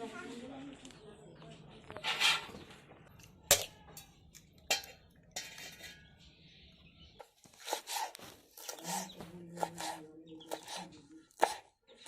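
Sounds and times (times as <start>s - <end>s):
dish scraping: 1.9s - 2.7s, 4.7s - 6.1s
dishes knocking and clinking: 3.2s - 6.1s
dishes clattering: 3.5s - 6.2s.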